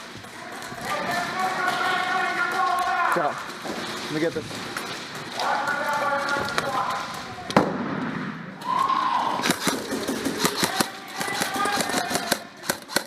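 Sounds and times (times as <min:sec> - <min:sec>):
airsoft gun shots: 0:09.4 - 0:13.0.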